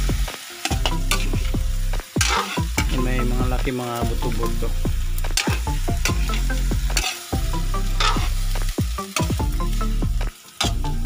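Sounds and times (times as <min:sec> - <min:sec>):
meat sizzling: 0:00.0 - 0:11.0
metal ladle scraping a wok: 0:00.2 - 0:01.5, 0:02.2 - 0:02.9, 0:05.2 - 0:09.4.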